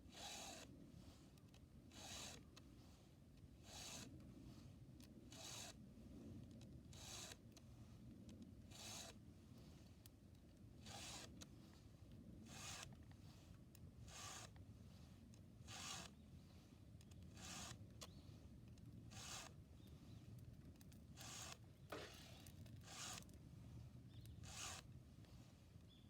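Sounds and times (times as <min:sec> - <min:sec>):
file rasping on chain: 0:14.0 - 0:14.6, 0:15.6 - 0:16.2, 0:17.4 - 0:17.8, 0:19.1 - 0:19.5, 0:21.2 - 0:23.3, 0:24.4 - 0:24.8.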